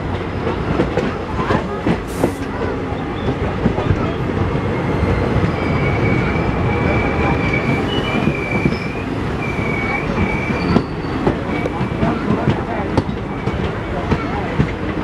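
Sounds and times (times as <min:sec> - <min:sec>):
train wheels rumbling on track: 0:00.0 - 0:15.0
high squeal: 0:04.1 - 0:11.2.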